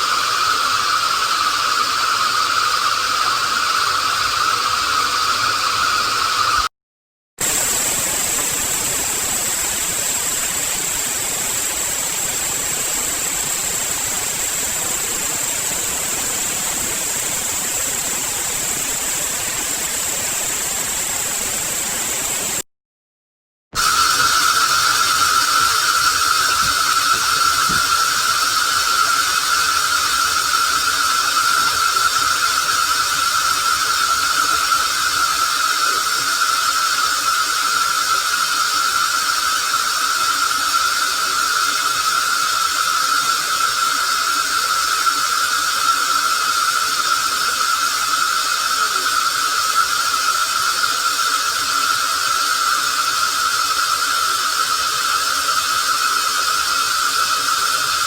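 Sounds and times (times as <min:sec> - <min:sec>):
processed water hiss: 0:00.0 - 0:06.7, 0:07.4 - 0:22.6, 0:23.8 - 0:58.0.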